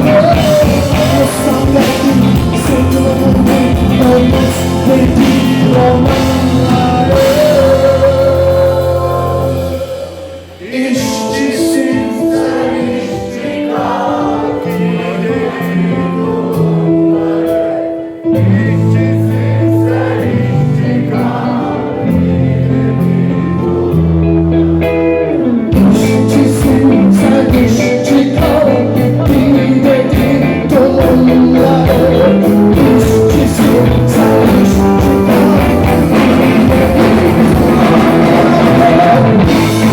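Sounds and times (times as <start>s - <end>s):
live rock band with singing: 0.0s - 39.9s.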